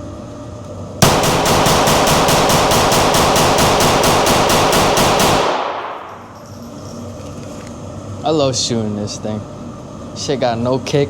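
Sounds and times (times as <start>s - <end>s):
rapid gunshots: 1.0s - 6.2s.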